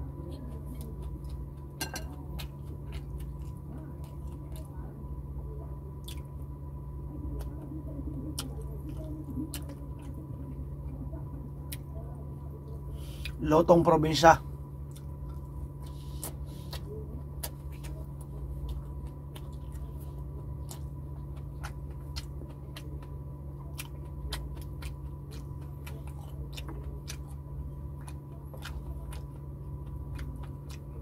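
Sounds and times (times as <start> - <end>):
steady low hum: 0.0 - 31.0
person chewing with mouth clicks: 0.3 - 4.7, 6.0 - 6.4, 7.3 - 10.3, 14.8 - 31.0.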